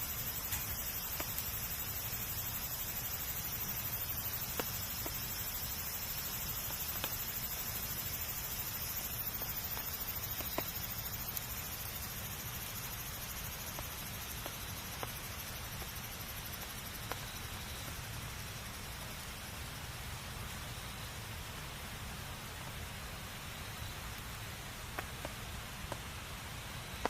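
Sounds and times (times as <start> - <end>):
wood fire hissing and rumbling: 0.0 - 27.0
sharp fire pops: 0.3 - 1.6, 3.6 - 7.6, 8.9 - 11.6, 24.8 - 26.1.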